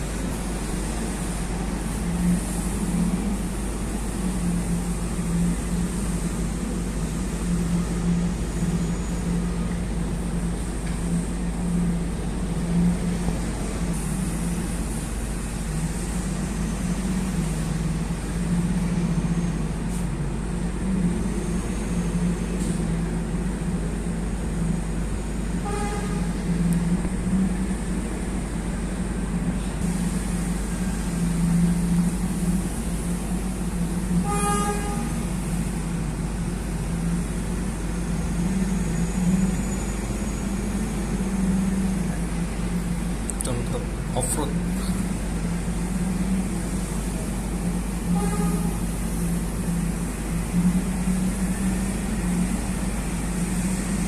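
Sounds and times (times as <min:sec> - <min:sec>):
diesel trucks engine rumble: 0:00.0 - 0:54.0
truck horn toots: 0:25.6 - 0:26.4, 0:34.2 - 0:35.2, 0:48.1 - 0:48.8.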